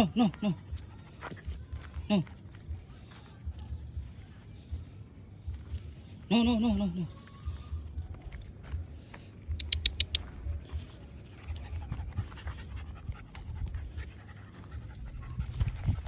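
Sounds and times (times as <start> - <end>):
dog panting: 9.6 - 16.0.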